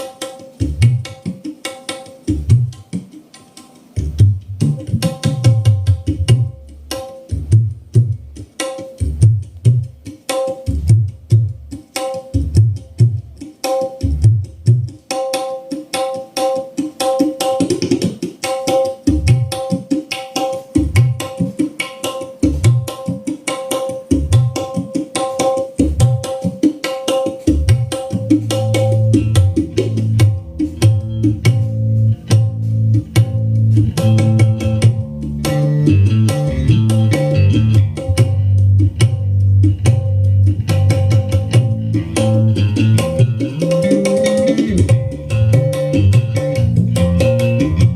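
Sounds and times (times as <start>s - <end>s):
deep hand drum strokes: 28.4s - 47.9s.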